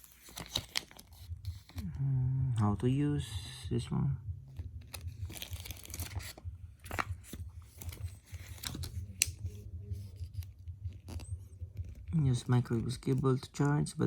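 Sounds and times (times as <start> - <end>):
paper rustling: 0.0 - 1.8, 4.8 - 13.7
low hum: 1.0 - 14.0.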